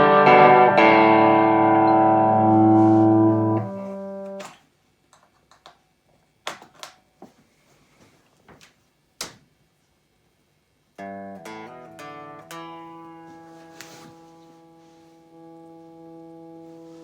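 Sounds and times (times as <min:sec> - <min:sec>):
electric guitar chord ringing: 0:00.0 - 0:04.4, 0:14.4 - 0:17.0.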